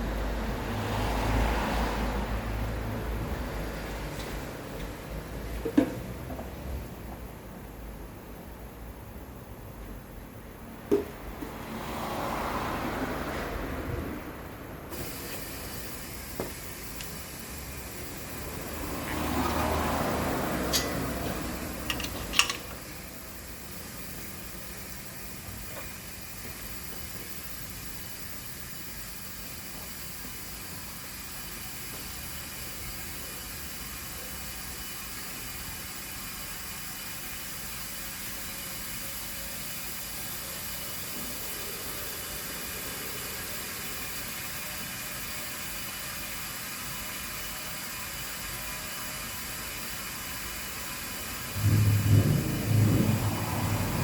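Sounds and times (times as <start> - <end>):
oil extraction machine hissing: 14.9 - 54.0.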